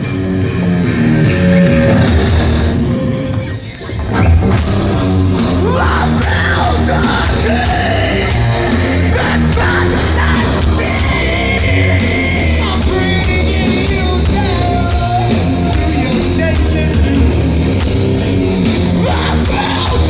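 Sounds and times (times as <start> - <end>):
distorted guitars: 0.0 - 20.0
drums: 0.0 - 20.0
person yelling vocals: 5.6 - 13.1.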